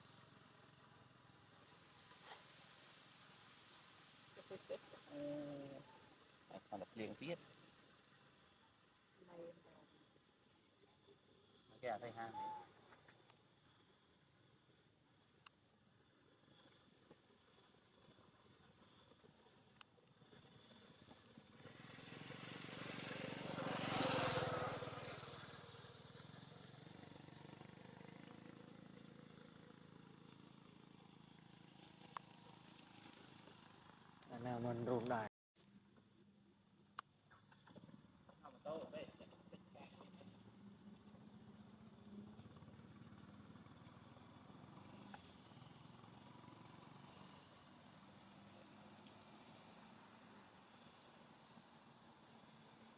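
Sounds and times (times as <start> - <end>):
passing vehicle engine: 21.5 - 28.6.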